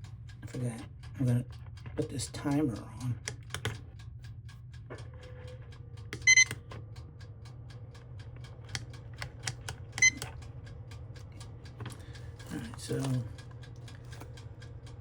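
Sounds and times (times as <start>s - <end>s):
high-pitched beeps: 6.2s - 6.5s
timer button clicks: 6.2s - 6.6s, 9.4s - 10.3s.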